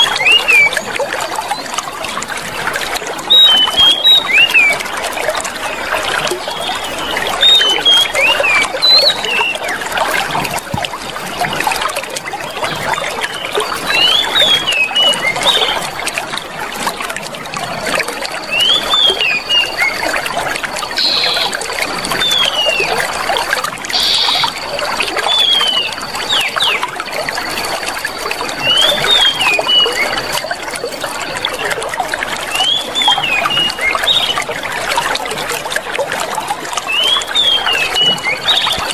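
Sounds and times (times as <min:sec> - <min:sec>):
water trickling: 0:00.0 - 0:38.9
small birds chirping: 0:03.3 - 0:04.9, 0:05.9 - 0:09.8, 0:20.9 - 0:23.0, 0:23.9 - 0:26.9.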